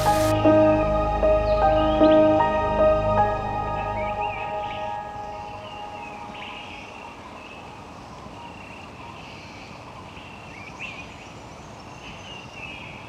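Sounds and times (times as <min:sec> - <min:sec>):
steady background hiss: 0:00.0 - 0:00.3.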